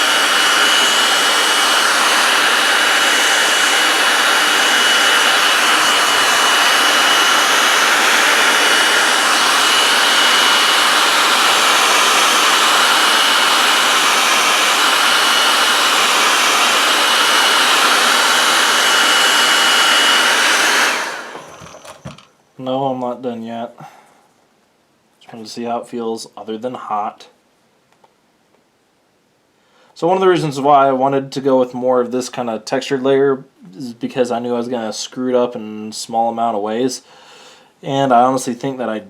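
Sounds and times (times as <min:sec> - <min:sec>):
hot-air blower running: 0:00.0 - 0:22.3.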